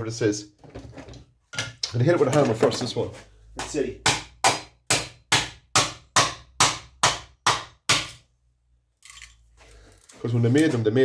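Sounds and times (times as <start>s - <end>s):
hammer striking metal casing: 3.6s - 8.2s.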